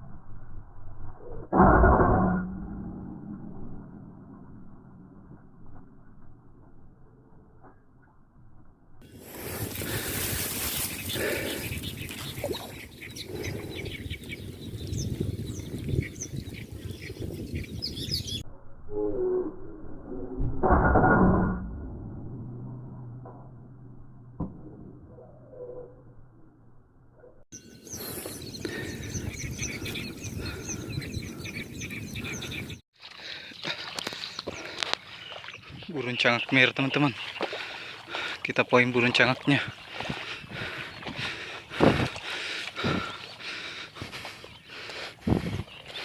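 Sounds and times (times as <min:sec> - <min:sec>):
steady low noise: 0:00.0 - 0:10.1
high bird chirps: 0:10.6 - 0:18.4, 0:27.2 - 0:32.8, 0:33.4 - 0:37.6.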